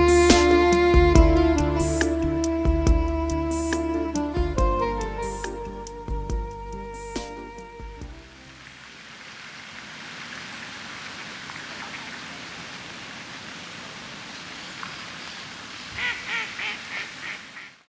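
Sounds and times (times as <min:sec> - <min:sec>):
rushing water: 0:06.7 - 0:17.9
duck quacking: 0:16.0 - 0:17.8.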